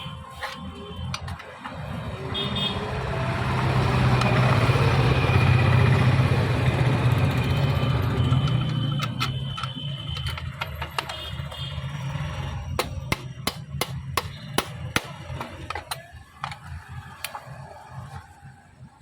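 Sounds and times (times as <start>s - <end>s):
electric motor winding down: 2.9s - 8.9s
clicks and knocks from handling machine: 8.2s - 11.8s.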